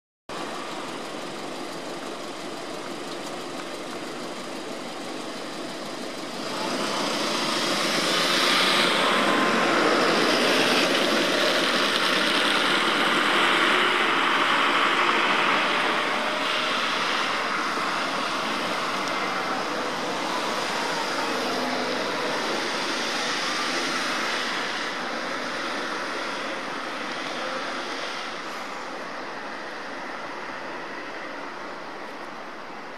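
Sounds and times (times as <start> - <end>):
background traffic noise: 0.3 - 32.9
vehicle passing: 6.4 - 28.4.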